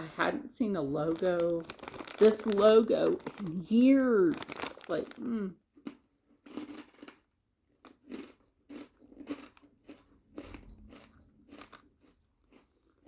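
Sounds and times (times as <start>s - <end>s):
person chewing crunchy chips: 1.1s - 13.0s.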